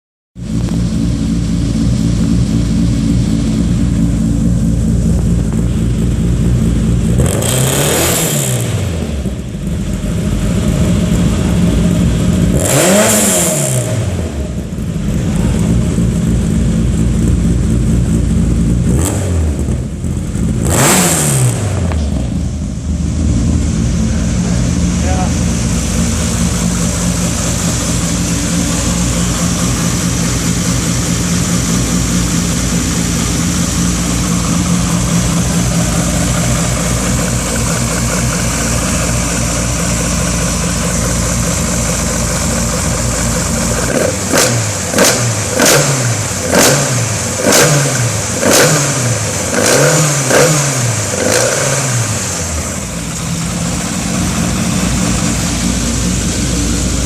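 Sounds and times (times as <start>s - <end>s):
racing engine idling and revving: 0.4s - 57.0s.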